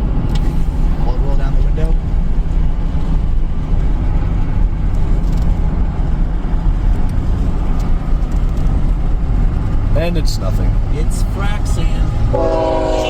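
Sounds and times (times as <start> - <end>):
road and engine rumble in cab: 0.0 - 13.0
low droning tones: 10.7 - 13.0.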